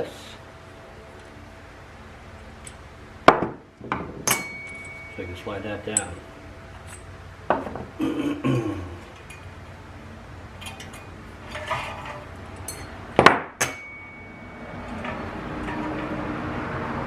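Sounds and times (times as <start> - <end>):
sharp metal clanks: 2.7 - 6.2, 10.6 - 16.2
metal parts clinking and knocking: 3.9 - 6.2, 10.6 - 16.2.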